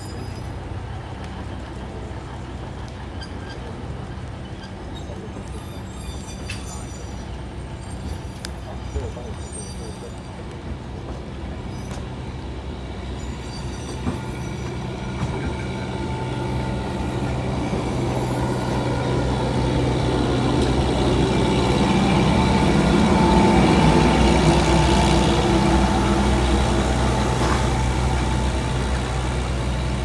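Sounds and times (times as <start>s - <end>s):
train running: 0.0s - 30.0s
low engine hum: 14.0s - 30.0s.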